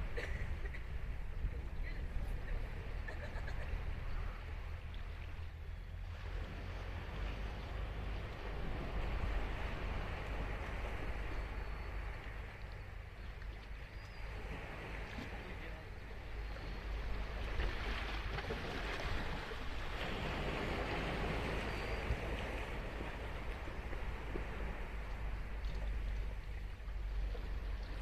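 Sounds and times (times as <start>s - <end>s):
ocean surf breaking on beach: 17.2s - 26.1s.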